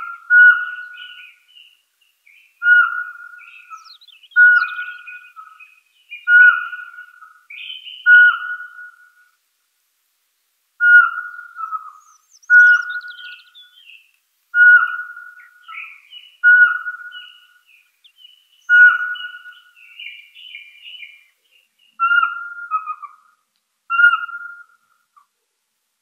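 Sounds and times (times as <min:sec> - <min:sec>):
bird chirps and trills: 0:00.0 - 0:09.1, 0:10.8 - 0:14.0, 0:14.6 - 0:23.3, 0:23.9 - 0:24.8
bird whistling: 0:00.1 - 0:01.4, 0:02.6 - 0:09.2, 0:10.8 - 0:14.0, 0:14.6 - 0:21.2, 0:23.9 - 0:24.8.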